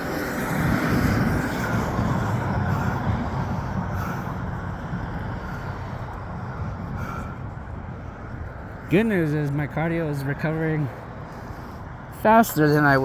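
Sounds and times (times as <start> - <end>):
wind on microphone: 0.0 - 9.9
road noise rumble: 0.0 - 13.0.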